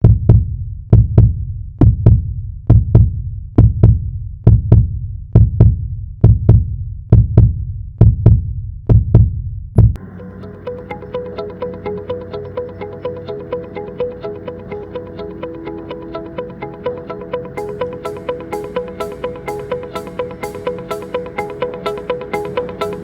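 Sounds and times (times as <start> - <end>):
electronic music with sustained tones: 10.0 - 23.0.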